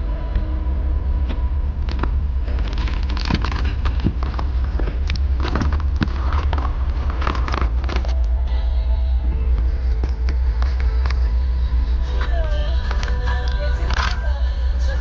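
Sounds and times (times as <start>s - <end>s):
boat motor: 0.0s - 15.0s
wind rumble: 0.0s - 15.0s
sharp crackles and knocks: 0.3s - 8.4s, 9.3s - 14.2s.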